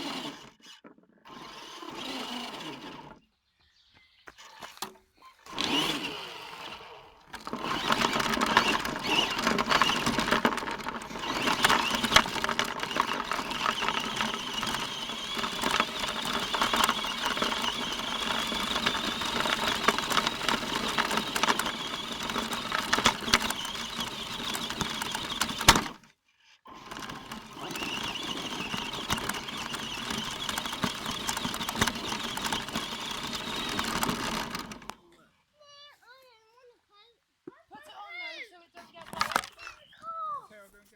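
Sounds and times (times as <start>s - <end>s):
toy car motor whining: 0.0s - 3.2s, 4.3s - 35.0s, 39.0s - 39.9s
small clicks: 7.3s - 26.1s, 26.9s - 35.0s.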